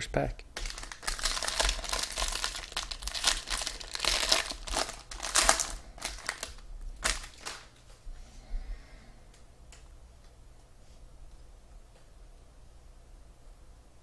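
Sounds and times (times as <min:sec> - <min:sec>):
foil wrapper crinkling: 0:00.6 - 0:07.8.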